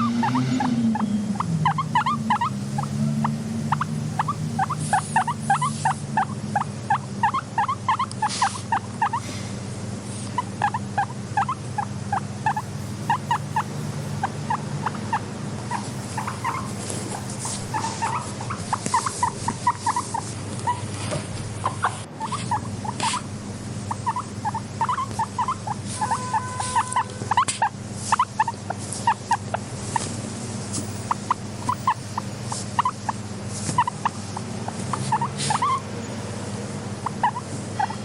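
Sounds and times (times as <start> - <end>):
low hum: 0.0 - 6.6
guinea pigs squeaking: 0.0 - 9.4, 10.0 - 38.0.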